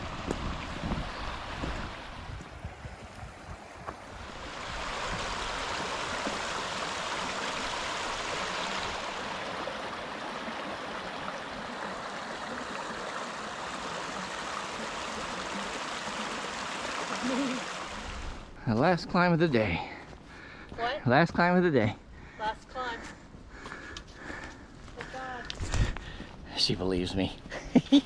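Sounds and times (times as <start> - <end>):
wind rumble on microphone: 0.0 - 6.3, 25.5 - 26.1.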